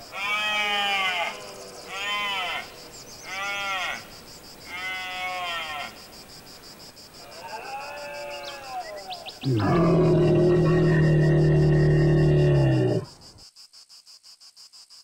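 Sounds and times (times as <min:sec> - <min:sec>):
high insect trill: 0:00.0 - 0:15.0
deer stag bellowing: 0:09.4 - 0:13.0.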